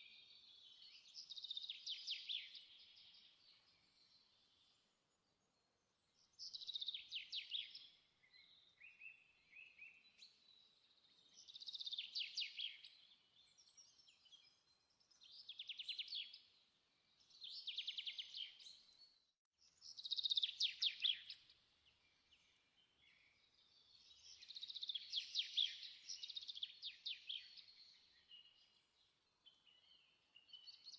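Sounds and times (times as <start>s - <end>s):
songbird singing trilled phrases: 19.8s - 21.5s.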